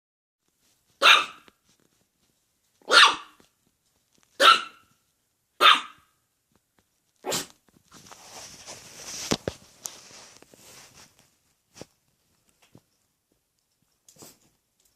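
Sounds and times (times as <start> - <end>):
rustling: 0.4 - 5.3, 6.5 - 14.9
dog barking: 1.0 - 1.5, 2.8 - 3.4, 4.4 - 4.9, 5.6 - 6.2, 7.2 - 7.5.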